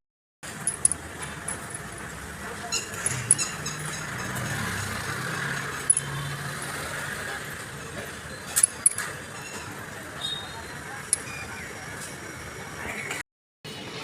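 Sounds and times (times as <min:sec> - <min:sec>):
metal parts clinking: 0:00.6 - 0:02.1, 0:02.9 - 0:04.4, 0:05.8 - 0:06.2, 0:08.5 - 0:09.7.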